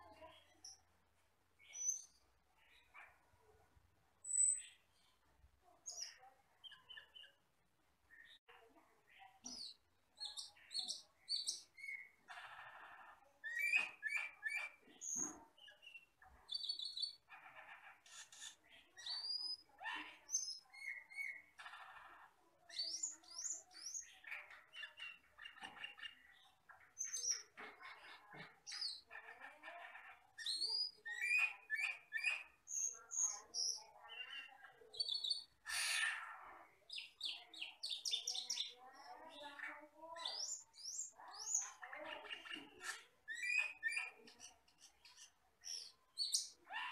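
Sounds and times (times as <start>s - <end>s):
starling singing chirps and whistles: 13.5s - 14.8s, 30.4s - 34.4s, 43.3s - 44.2s.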